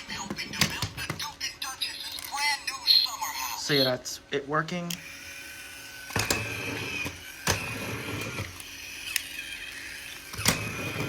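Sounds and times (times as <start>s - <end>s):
small electric motor whining: 4.9s - 11.0s.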